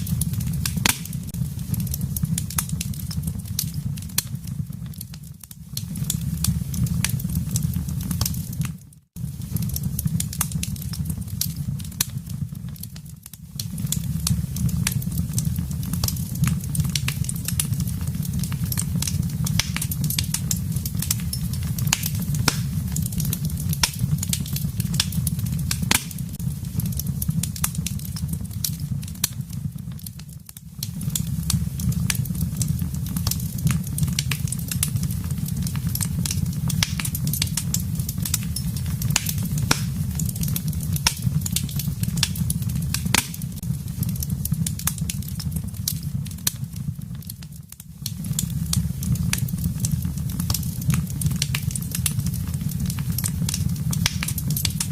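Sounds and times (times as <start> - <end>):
low rumble of flames: 0.0 - 54.9
wood fire crackling and popping: 0.0 - 54.9.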